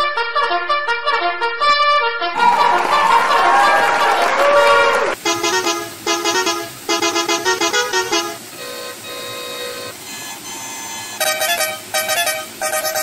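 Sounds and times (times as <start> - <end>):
ice cream truck jingle: 5.2 - 13.0.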